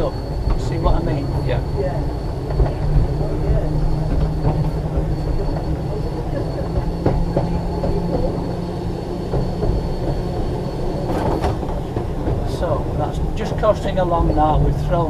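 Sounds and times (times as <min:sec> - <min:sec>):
tram motor and gear whine: 0:00.0 - 0:15.0
tram wheels rumbling and rattling: 0:00.0 - 0:15.0.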